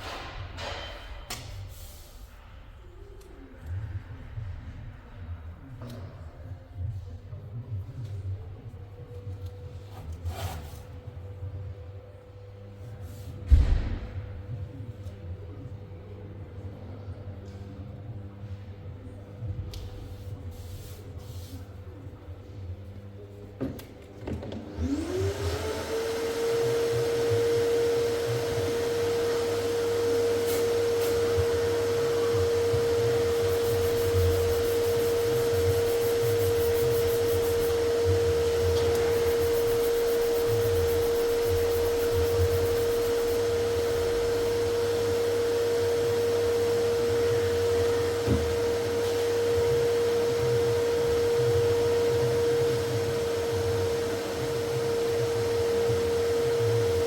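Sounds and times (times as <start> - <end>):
electric motor high whine: 24.8 - 57.0.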